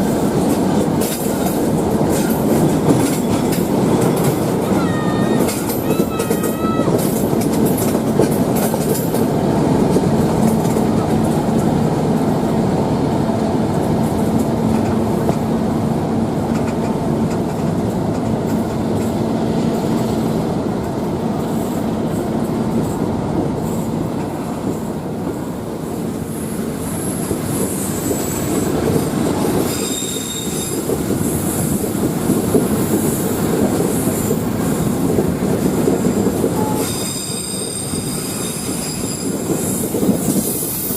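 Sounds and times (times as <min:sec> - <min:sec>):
train wheels rumbling on rails: 0:00.0 - 0:40.9
high-pitched wheel squeal: 0:04.6 - 0:07.0, 0:29.5 - 0:30.9, 0:36.6 - 0:40.9.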